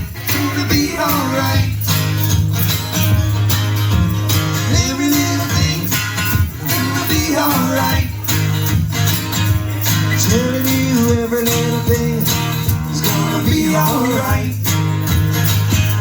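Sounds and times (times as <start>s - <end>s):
steady bass line: 0.0s - 16.0s
strummed acoustic guitar: 0.0s - 16.0s.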